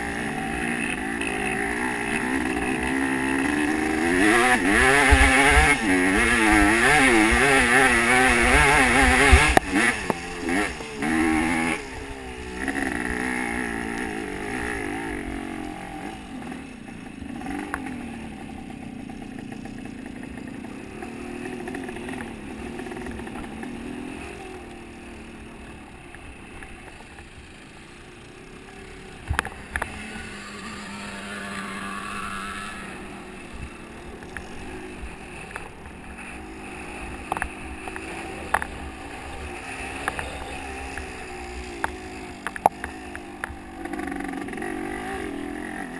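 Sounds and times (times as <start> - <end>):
motorcycle engines revving: 0.0 - 45.9.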